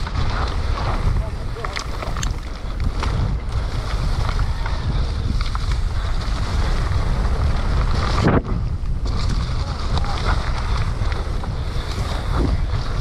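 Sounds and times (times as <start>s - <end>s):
bike clicks and rattles: 0.0s - 13.0s
bike tyre noise: 0.0s - 13.0s
wind on microphone: 0.0s - 13.0s.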